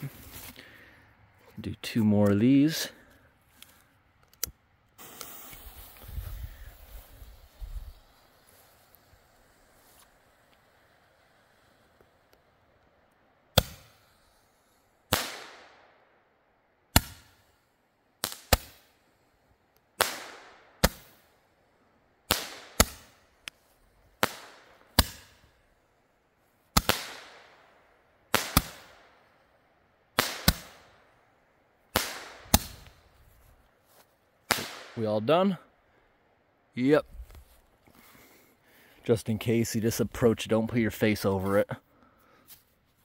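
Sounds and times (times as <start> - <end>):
firework hiss: 5.0 - 12.7
firework popping: 5.0 - 12.8.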